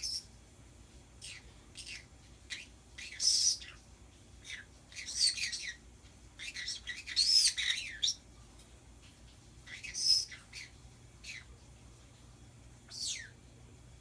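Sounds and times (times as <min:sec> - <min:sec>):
birds chirping and screeching: 0:00.0 - 0:00.3, 0:01.2 - 0:08.3, 0:09.3 - 0:11.6, 0:12.8 - 0:13.4.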